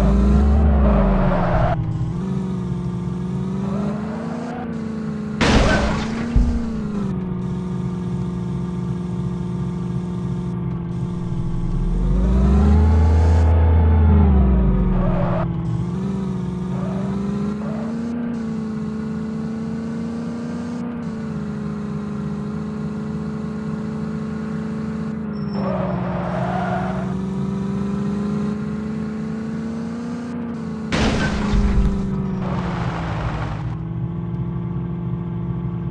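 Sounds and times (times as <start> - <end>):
tractor engine running: 4.5 - 25.2.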